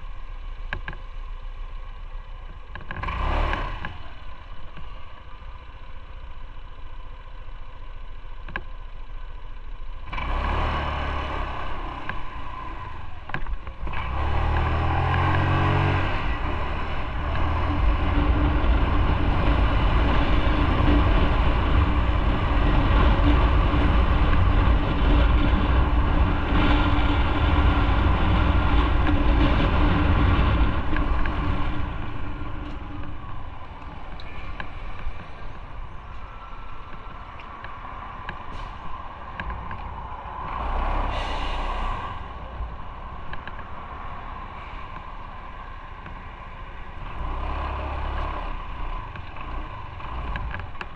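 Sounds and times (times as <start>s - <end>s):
motorcycle engine: 0.0s - 50.9s
wind noise: 12.1s - 50.9s.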